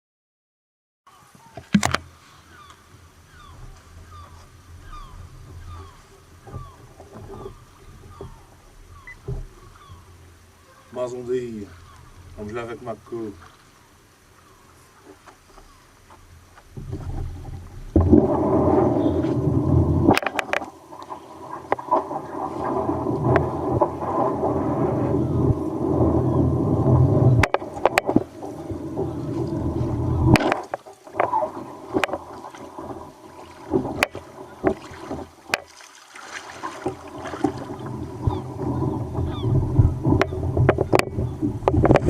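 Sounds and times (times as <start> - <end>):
water sloshing against kayak: 1.3 - 42.0
sharp knocks: 1.6 - 2.0
wind buffeting microphone: 1.7 - 13.5, 15.7 - 35.6, 36.4 - 42.0.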